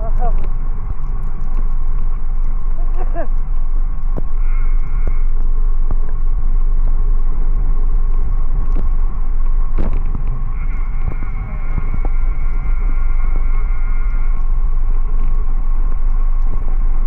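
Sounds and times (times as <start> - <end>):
road noise: 0.0 - 17.0
wind buffeting microphone: 0.0 - 17.0
faint high whine: 8.7 - 17.0.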